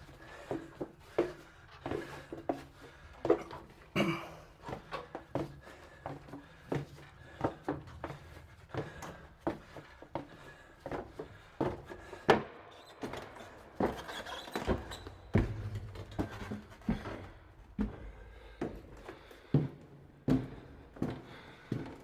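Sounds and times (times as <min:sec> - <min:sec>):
footsteps walking: 0:13.0 - 0:22.0.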